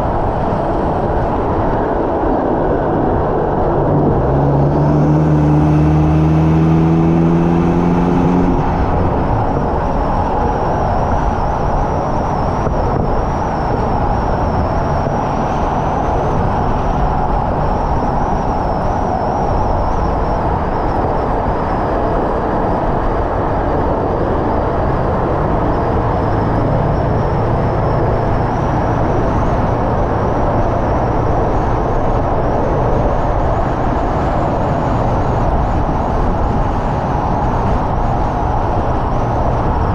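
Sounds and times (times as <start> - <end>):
wind and tyre noise: 0.0 - 39.9
car engine accelerating: 2.7 - 17.8, 23.8 - 39.9.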